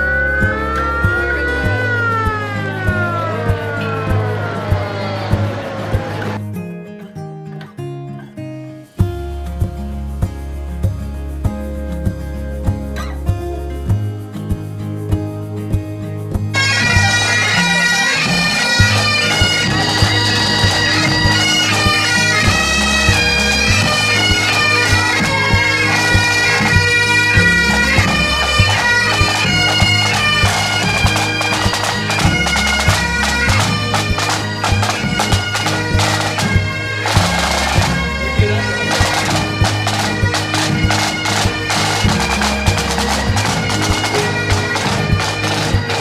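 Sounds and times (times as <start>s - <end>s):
bagpipes playing a marching tune: 0.0s - 6.4s, 16.6s - 46.0s
drum beats: 0.0s - 6.4s, 9.0s - 46.0s.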